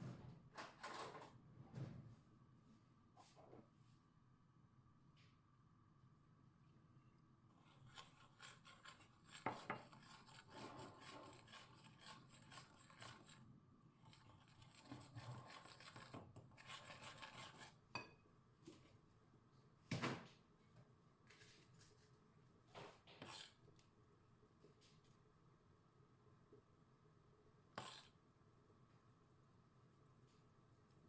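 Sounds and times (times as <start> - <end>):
quiet scraping and rubbing: 3.2 - 4.0, 7.5 - 18.0, 21.2 - 23.8, 27.7 - 28.2.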